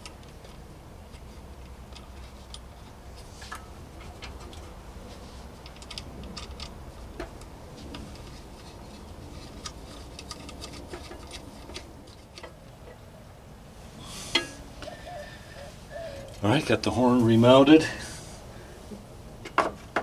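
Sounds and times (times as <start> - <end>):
clicks of hand tools and parts: 5.6 - 13.0, 14.3 - 14.6.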